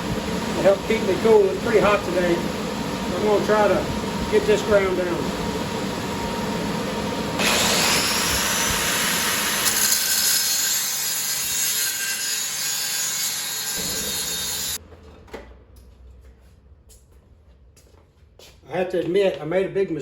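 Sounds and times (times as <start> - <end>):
grinder grinding metal: 7.4 - 14.8.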